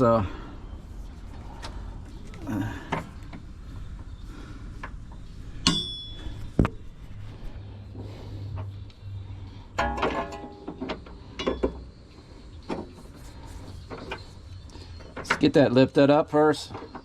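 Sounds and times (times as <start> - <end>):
low steady hum: 0.0 - 15.3
ringing metallic clink: 5.6 - 6.4.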